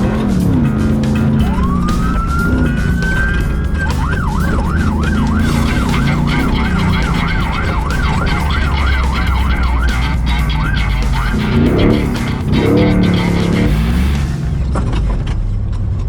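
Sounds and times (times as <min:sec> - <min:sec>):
background music: 0:00.0 - 0:14.6
siren wailing and yelping: 0:01.4 - 0:13.7.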